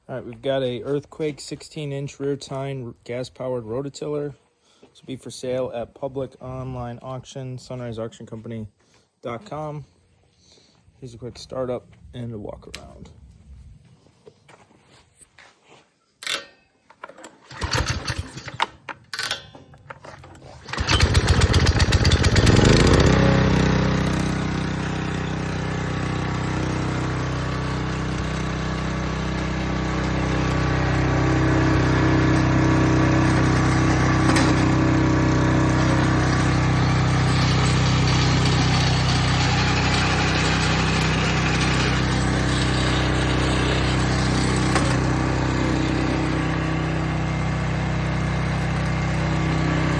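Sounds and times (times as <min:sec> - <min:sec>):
engine cranking: 0:16.2 - 0:49.9
small gas engine starting and running: 0:17.0 - 0:49.9.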